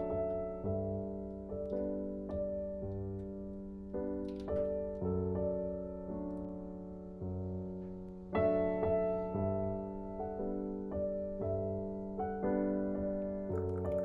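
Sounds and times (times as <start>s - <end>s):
soft piano chords: 0.0s - 14.0s.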